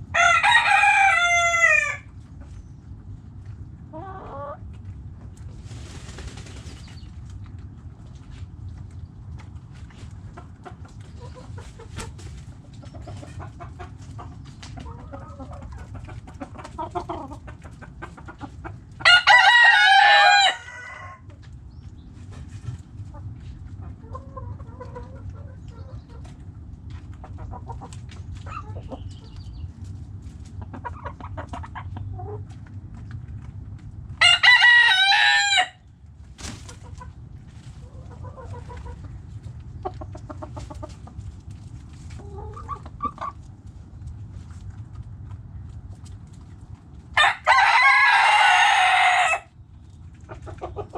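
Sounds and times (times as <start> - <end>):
rooster crowing: 0.1 - 2.1, 19.0 - 21.3, 34.2 - 35.8, 47.2 - 49.5
hens clucking softly: 0.2 - 50.9.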